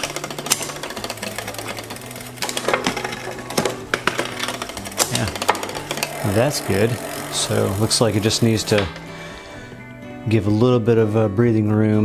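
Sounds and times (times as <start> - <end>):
chain rubbing on derailleur: 0.0 - 9.4
bicycle chain clicking through gears: 0.0 - 9.7
drivetrain whirr: 0.0 - 10.2.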